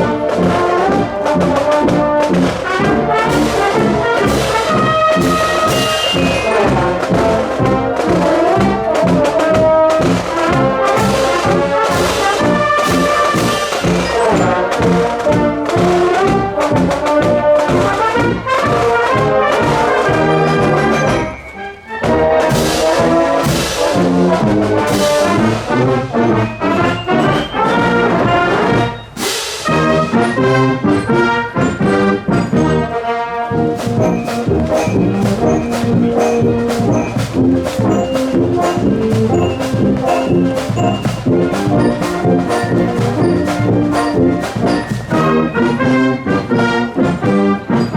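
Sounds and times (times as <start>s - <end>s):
marching band playing brass music: 0.0s - 47.9s.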